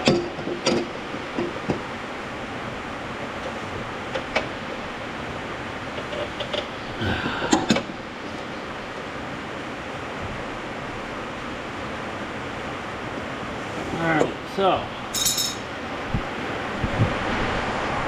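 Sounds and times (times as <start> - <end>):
rain hissing: 1.9 - 18.0
sharp knocks and clinks: 15.1 - 15.7.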